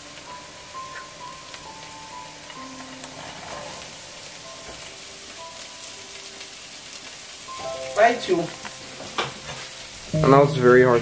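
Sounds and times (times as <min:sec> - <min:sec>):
vegetables sizzling in butter: 0:00.0 - 0:11.0
chiming background music: 0:10.2 - 0:11.0.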